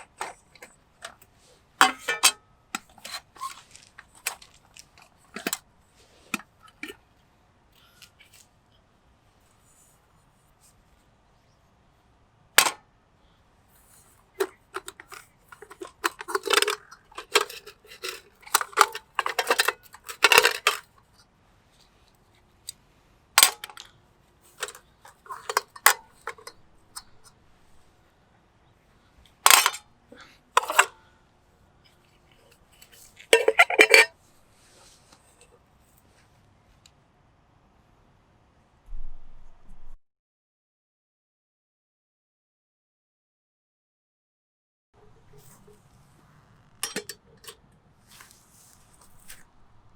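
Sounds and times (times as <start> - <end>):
metal cookware clinking: 1.8 - 3.6, 14.4 - 20.8, 24.6 - 27.2, 29.5 - 29.8, 30.6 - 30.9, 33.3 - 34.1, 46.8 - 47.6.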